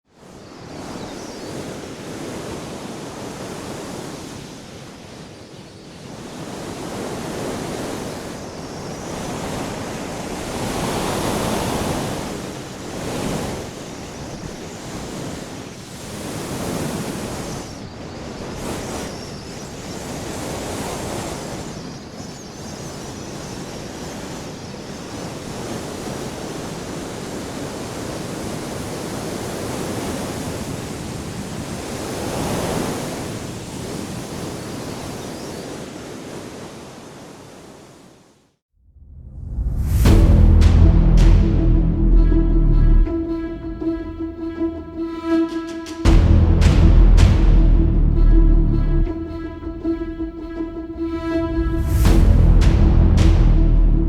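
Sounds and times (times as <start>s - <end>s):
strong gusting wind: 39.0s - 54.0s.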